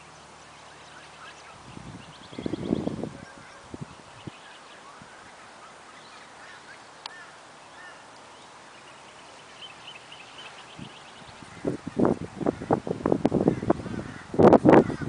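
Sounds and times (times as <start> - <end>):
faint bird chirps: 0.0 - 11.8
outdoor hiss: 0.0 - 15.0.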